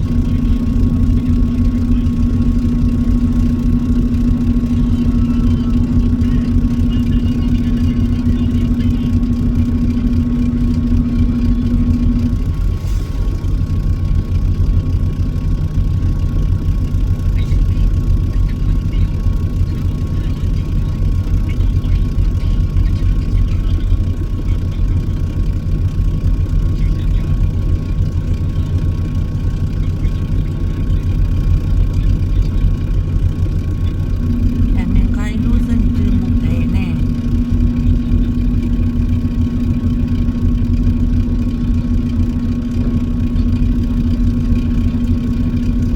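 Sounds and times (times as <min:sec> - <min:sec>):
truck engine drone from cab: 0:00.0 - 0:45.9
higher hum: 0:30.4 - 0:45.9.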